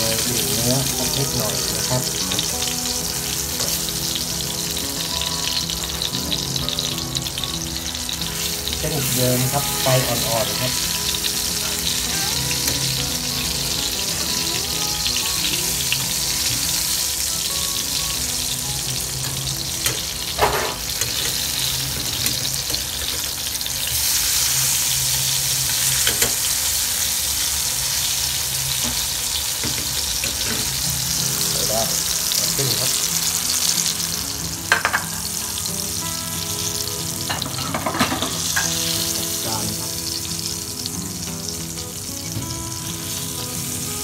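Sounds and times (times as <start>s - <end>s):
tomatoes sizzling in a frying pan: 0.0s - 44.0s
metal tongs scraping a pan: 25.7s - 26.5s.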